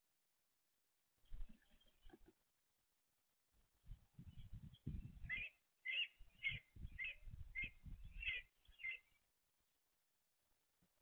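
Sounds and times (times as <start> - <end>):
small bird cheeping: 5.3 - 9.1.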